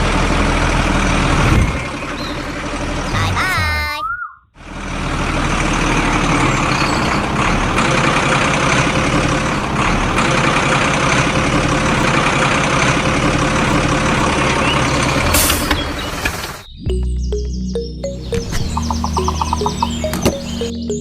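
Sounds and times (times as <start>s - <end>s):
truck engine running: 0.0s - 4.0s, 4.6s - 21.0s.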